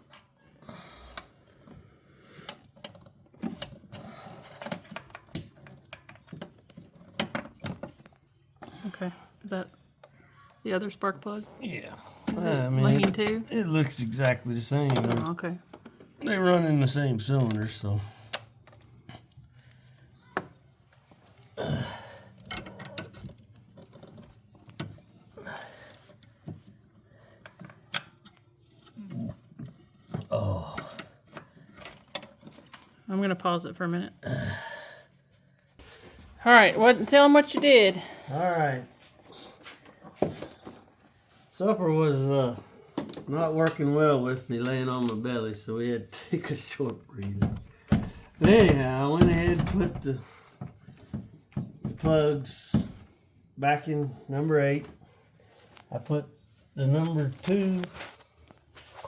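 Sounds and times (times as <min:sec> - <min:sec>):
hand tools clicking and clinking: 0:12.3 - 0:16.5, 0:17.2 - 0:18.9.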